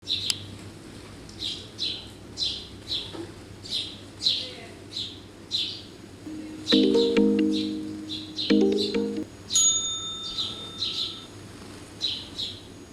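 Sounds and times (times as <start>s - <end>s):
bird chirping: 6.6s - 9.2s.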